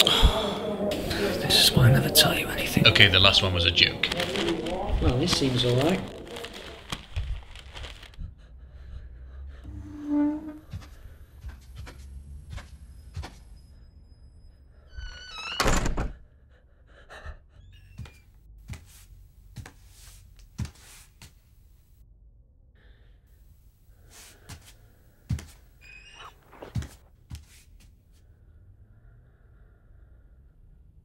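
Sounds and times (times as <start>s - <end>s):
short squeak: 25.8s - 26.8s.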